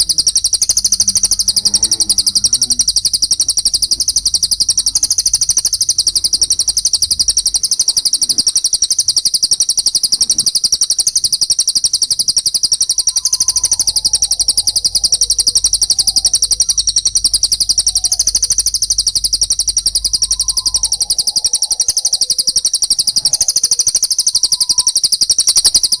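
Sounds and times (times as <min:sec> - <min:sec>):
fast high-pitched bird chattering: 0:00.0 - 0:26.0
faint low whistled notes: 0:12.9 - 0:22.5.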